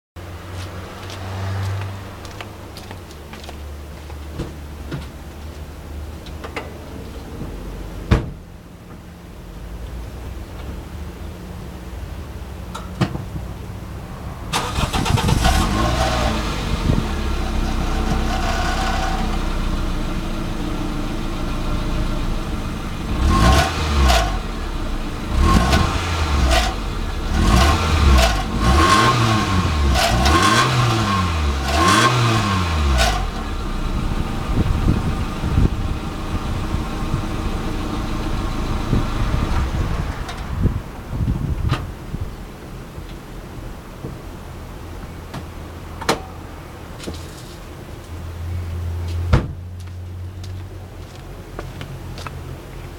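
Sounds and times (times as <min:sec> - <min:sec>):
car engine starting and idling: 0:04.4 - 0:46.8
engine revving in quick blips: 0:25.3 - 0:33.4.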